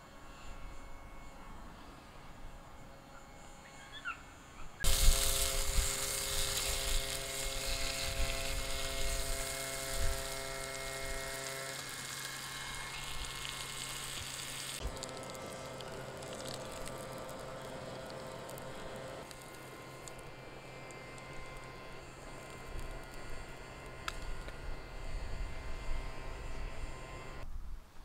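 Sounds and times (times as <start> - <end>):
faint steady hum: 0.0 - 28.0
sausages sizzling in a frying pan: 4.8 - 19.5.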